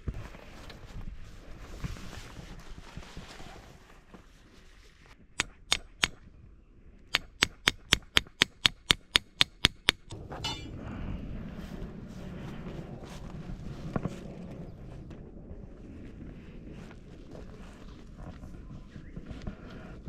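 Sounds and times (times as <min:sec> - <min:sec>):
hammer striking metal tent peg: 0:05.4 - 0:06.2, 0:07.1 - 0:10.7.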